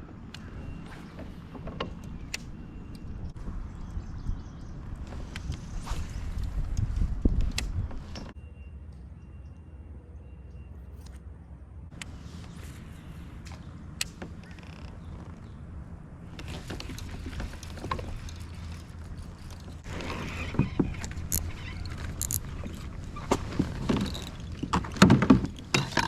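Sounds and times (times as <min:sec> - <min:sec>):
rustling and splashing: 0:16.3 - 0:26.0.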